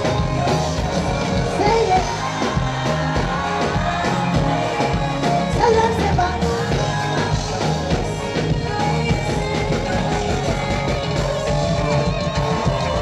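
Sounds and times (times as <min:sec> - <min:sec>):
bass line: 0:00.0 - 0:13.0
drum beats: 0:00.0 - 0:13.0
live band music: 0:00.0 - 0:13.0
vocal or lead line: 0:00.0 - 0:13.0.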